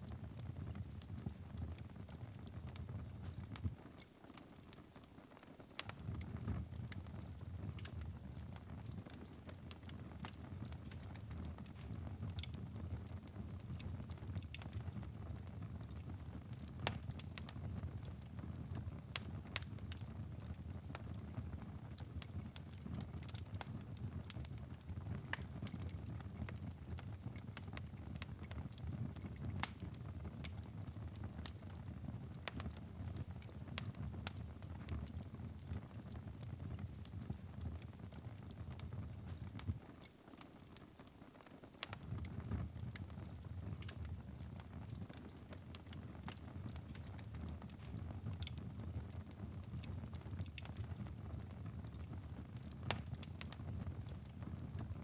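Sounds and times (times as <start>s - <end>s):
fire crackling and popping: 0.0s - 55.0s.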